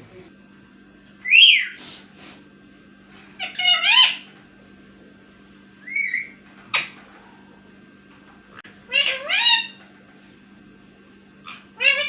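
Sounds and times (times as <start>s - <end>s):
parrot calling: 1.2s - 1.8s, 3.3s - 4.4s, 5.8s - 7.5s, 8.6s - 9.9s, 11.4s - 12.0s.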